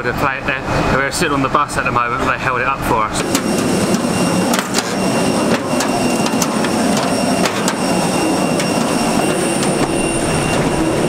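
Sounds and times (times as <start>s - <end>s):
vehicle cabin noise: 3.0s - 11.0s
sharp clicks and knocks: 3.2s - 10.7s
faint high whine: 3.2s - 11.0s.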